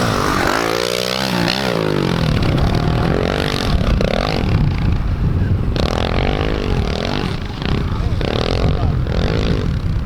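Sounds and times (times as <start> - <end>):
dirt bike engines revving: 0.0 - 10.0.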